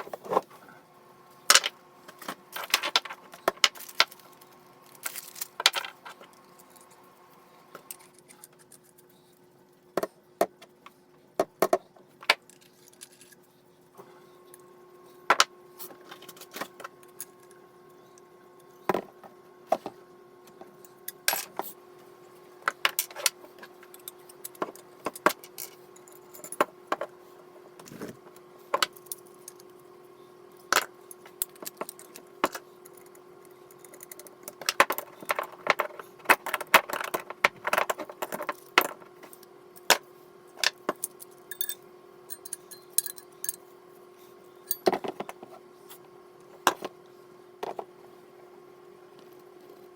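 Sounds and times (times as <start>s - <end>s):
steady low hum: 0.0s - 49.9s
metal parts clinking and clattering: 4.9s - 6.8s, 40.9s - 43.6s.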